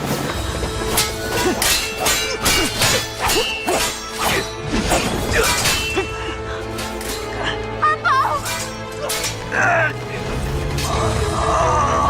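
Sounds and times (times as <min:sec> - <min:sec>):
background music: 0:00.0 - 0:12.0
metallic sword clangs: 0:00.9 - 0:07.4, 0:08.3 - 0:09.6
blade swishes: 0:00.9 - 0:07.5, 0:08.2 - 0:09.6.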